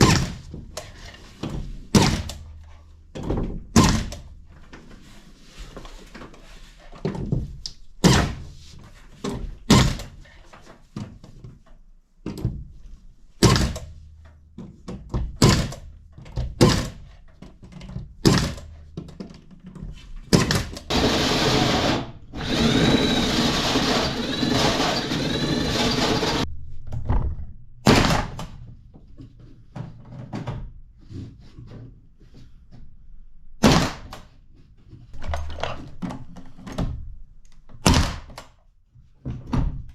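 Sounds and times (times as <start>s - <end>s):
power tool running: 20.9s - 26.4s.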